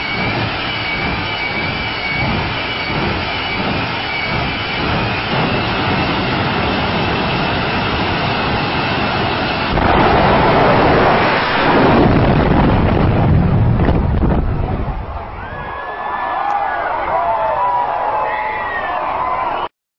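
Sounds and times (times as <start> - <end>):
high whine: 0.0 - 15.3
jet engine roaring: 0.0 - 15.7.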